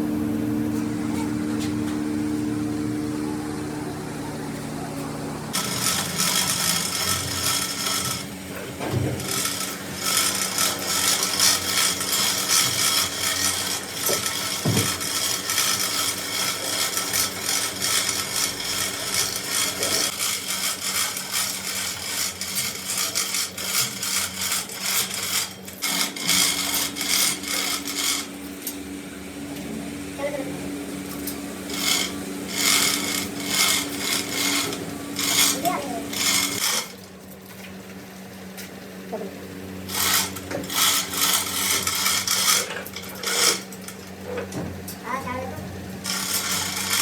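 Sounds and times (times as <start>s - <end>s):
machine hum: 0.0s - 47.0s
abrasive tool rasping on steel: 5.5s - 8.6s, 9.2s - 28.4s, 31.6s - 37.0s, 39.9s - 44.0s, 46.0s - 47.0s.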